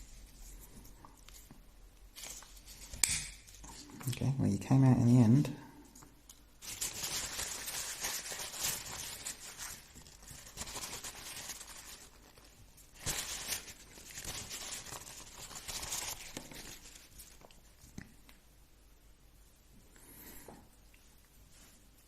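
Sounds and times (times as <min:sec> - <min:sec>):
crinkling and rustling handling noise: 0:00.0 - 0:04.3, 0:05.8 - 0:18.5.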